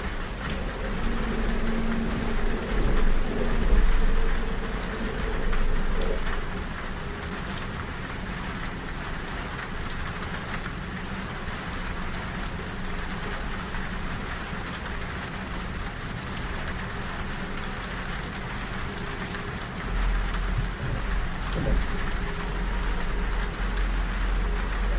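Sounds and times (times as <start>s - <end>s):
deep rumble: 0.0s - 8.4s, 18.0s - 24.9s
rain pattering on a window: 0.0s - 24.9s
train rumbling: 0.0s - 24.9s.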